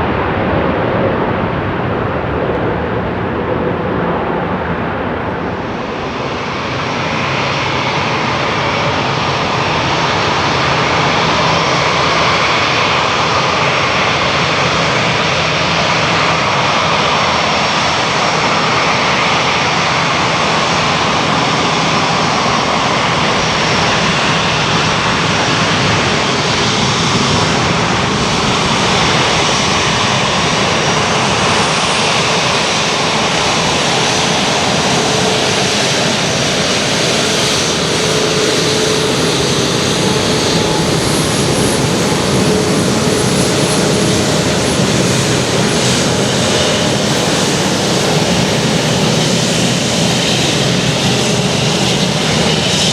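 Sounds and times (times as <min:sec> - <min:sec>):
jet engines roaring: 0:00.0 - 0:52.9.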